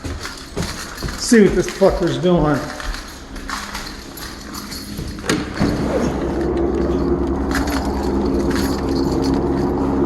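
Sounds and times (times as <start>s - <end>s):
helicopter hovering: 2.8s - 10.0s.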